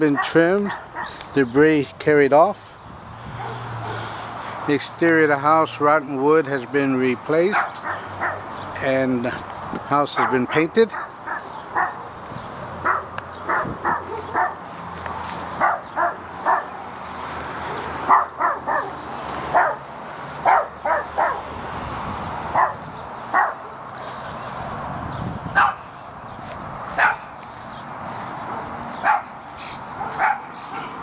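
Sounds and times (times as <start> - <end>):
dog barking: 0.1 - 1.2, 3.4 - 4.1, 7.5 - 8.4, 10.2 - 12.1, 12.8 - 14.6, 15.6 - 16.7, 17.7 - 19.8, 20.4 - 21.5, 22.5 - 23.8, 25.6 - 25.9, 27.0 - 27.3, 29.0 - 29.3, 30.0 - 30.9.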